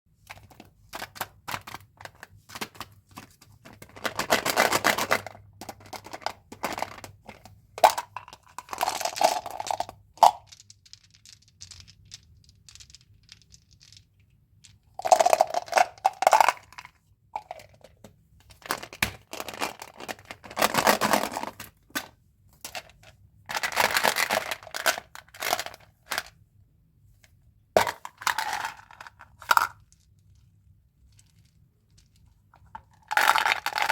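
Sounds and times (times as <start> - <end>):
plastic wrappers crinkling and tearing: 18.6 - 20.8.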